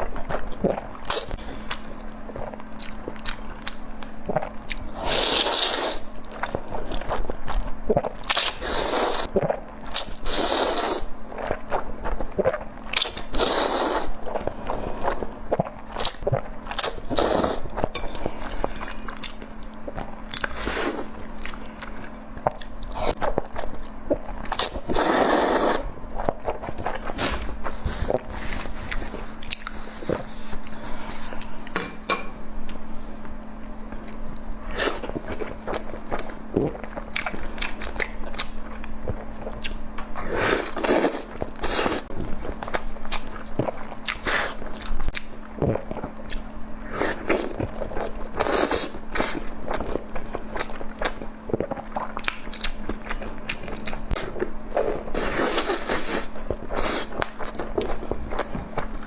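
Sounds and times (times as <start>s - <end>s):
steady low hum: 0.0s - 59.0s
chewing with wet clicks: 0.6s - 4.8s, 35.7s - 40.2s, 49.7s - 54.3s.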